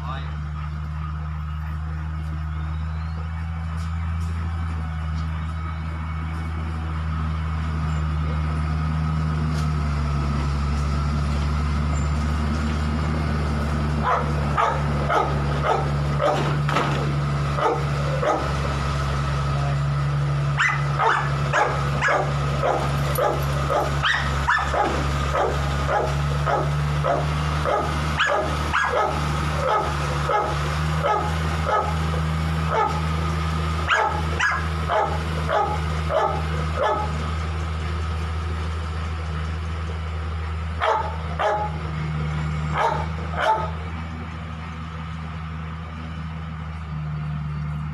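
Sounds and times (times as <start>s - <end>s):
dog barking: 14.0s - 16.5s, 17.6s - 18.5s, 20.6s - 32.0s, 32.7s - 33.0s, 33.9s - 37.2s, 40.8s - 41.8s, 42.7s - 43.8s.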